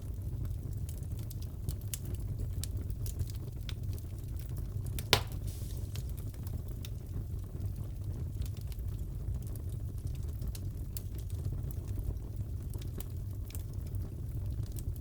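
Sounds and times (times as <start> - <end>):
wood fire crackling: 0.2 - 15.0
loud pop from fire: 5.0 - 6.4.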